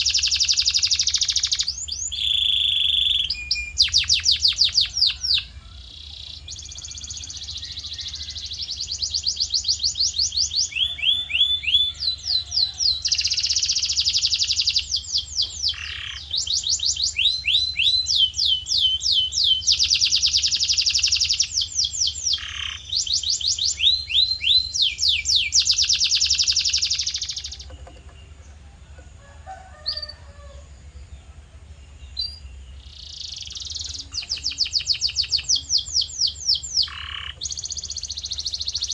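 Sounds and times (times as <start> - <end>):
canary singing in trills: 0.0 - 38.9
low steady hum: 27.0 - 38.9.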